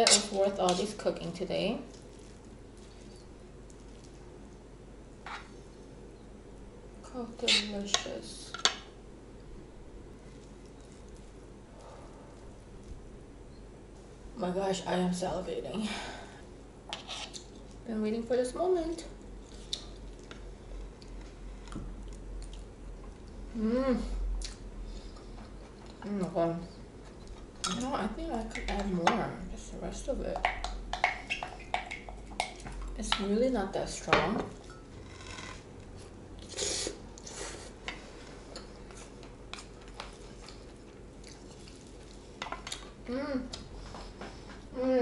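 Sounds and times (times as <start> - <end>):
soft chewing: 1.8 - 4.6, 10.1 - 13.1, 19.2 - 23.5, 34.5 - 44.7
chewing food: 19.4 - 23.4, 38.6 - 43.7
person humming: 23.5 - 24.2, 43.1 - 43.6, 44.7 - 45.0.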